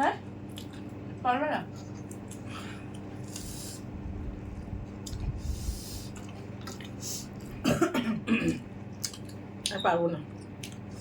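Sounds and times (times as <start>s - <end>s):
faint steady hum: 0.0s - 11.0s
person coughing: 7.6s - 8.7s.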